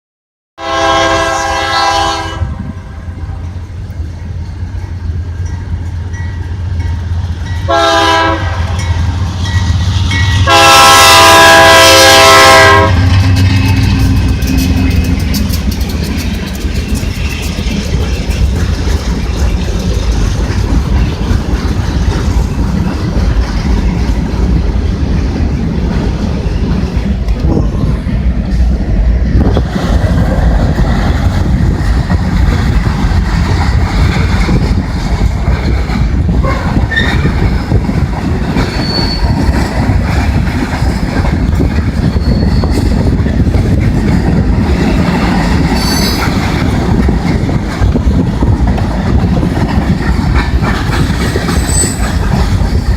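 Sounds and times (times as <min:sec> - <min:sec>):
train air horn: 0:00.6 - 0:02.7, 0:07.7 - 0:08.8, 0:10.4 - 0:15.3, 0:36.4 - 0:36.8
train wheels clattering over rail joints: 0:13.0 - 0:52.9.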